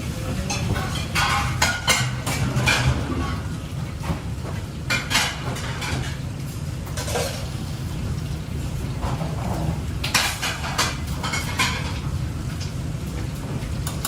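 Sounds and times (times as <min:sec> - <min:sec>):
metal utensils clinking on pots: 0:00.2 - 0:04.2, 0:04.8 - 0:07.5, 0:09.0 - 0:12.1, 0:13.8 - 0:14.0.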